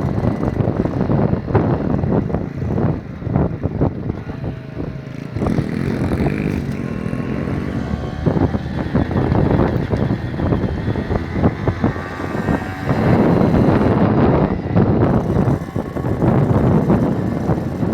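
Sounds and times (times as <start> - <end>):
small motorcycle engine revving: 0.0 - 17.9.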